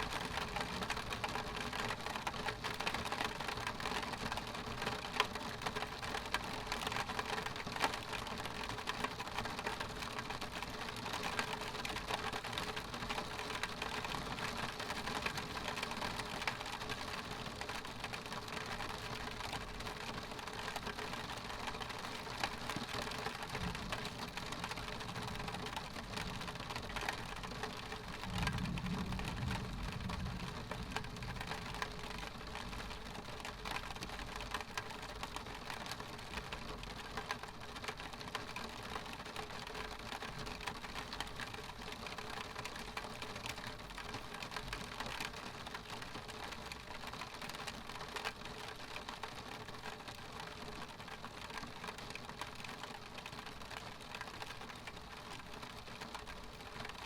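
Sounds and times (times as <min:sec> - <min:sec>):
rain on window pane: 0:00.0 - 0:57.0
distant thunder rumble: 0:28.2 - 0:32.2.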